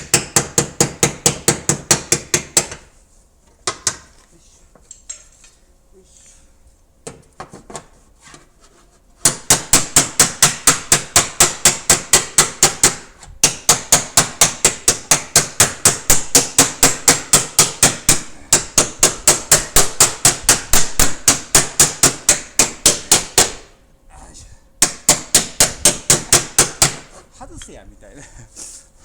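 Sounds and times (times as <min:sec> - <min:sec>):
hammer tapping on steel panel: 0:00.0 - 0:02.9, 0:09.2 - 0:23.7, 0:24.8 - 0:27.1.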